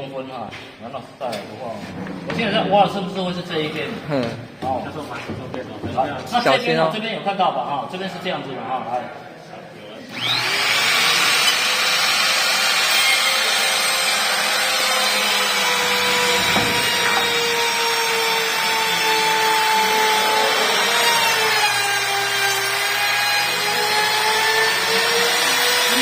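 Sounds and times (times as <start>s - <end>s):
electric router cutting wood: 10.1s - 26.0s.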